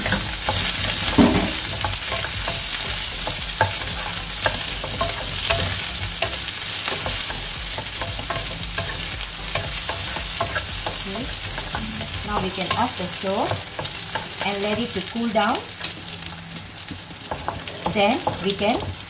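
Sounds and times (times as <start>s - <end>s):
spatula knocking on pan: 0.0s - 14.9s
vegetables sizzling in oil: 0.0s - 19.0s.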